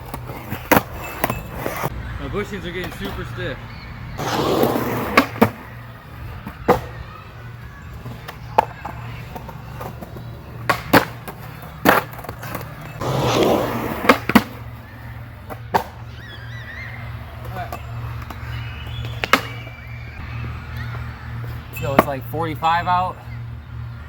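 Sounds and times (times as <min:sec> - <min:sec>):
skateboard clacks: 0:00.0 - 0:01.9, 0:04.2 - 0:16.1, 0:17.0 - 0:20.2
skateboard wheels rolling: 0:00.0 - 0:24.0.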